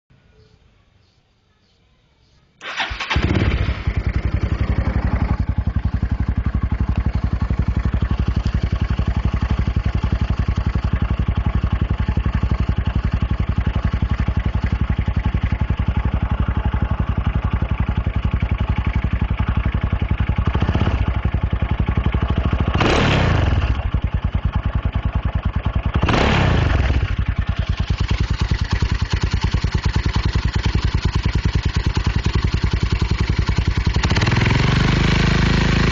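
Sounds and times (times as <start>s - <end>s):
motorcycle engine idling and revving: 2.6s - 35.9s.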